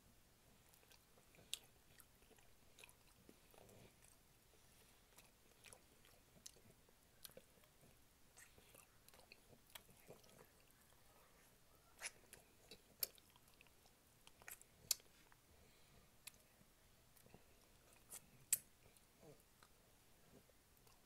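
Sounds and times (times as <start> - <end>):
chewing and wet mouth clicks: 8.4 - 10.7, 12.0 - 15.1, 17.2 - 19.8
sharp lip smacks: 12.0 - 12.3.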